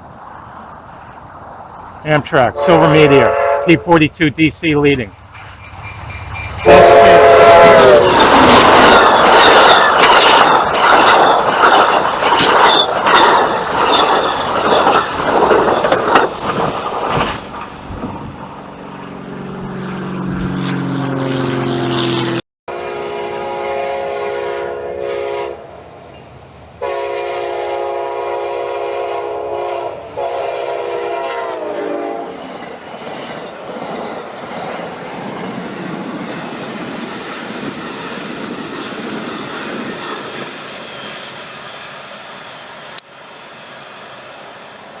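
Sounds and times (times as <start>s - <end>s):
locomotive horn blasts: 2.5s - 4.1s, 6.6s - 8.3s, 21.2s - 25.8s, 26.8s - 32.4s
train cars rolling by: 4.9s - 21.0s, 22.0s - 45.0s.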